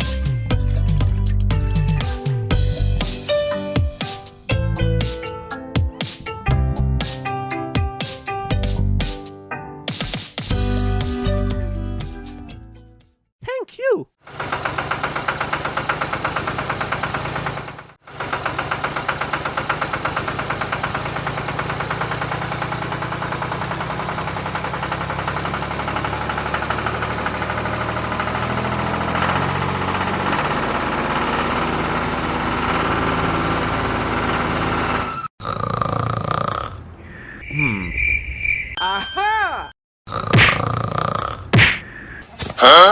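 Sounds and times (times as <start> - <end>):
tractor engine chugging: 14.2 - 35.3.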